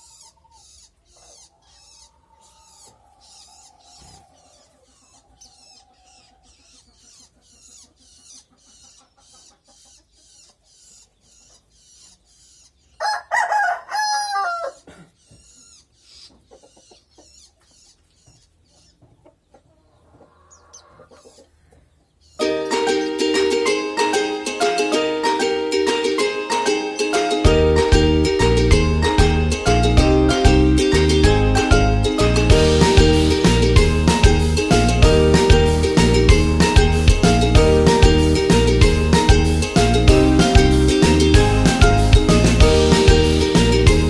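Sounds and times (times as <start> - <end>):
thin high bird chirps: 0.0 - 13.2, 14.0 - 19.0
rooster crowing: 13.0 - 14.9.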